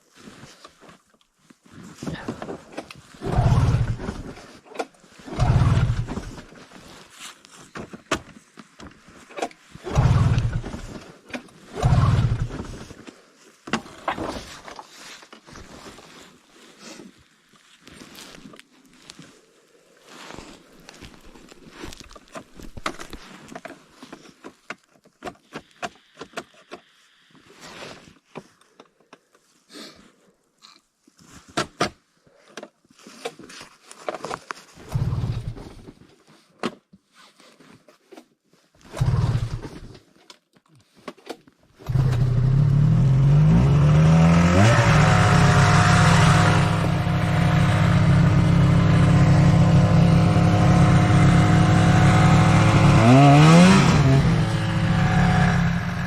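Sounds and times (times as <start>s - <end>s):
snowmobile engine running and revving: 3.2s - 4.3s, 5.3s - 6.4s, 9.8s - 10.9s, 11.8s - 12.7s, 34.9s - 35.6s, 39.0s - 39.7s, 41.8s - 56.0s
short low engine bursts: 44.6s - 56.0s.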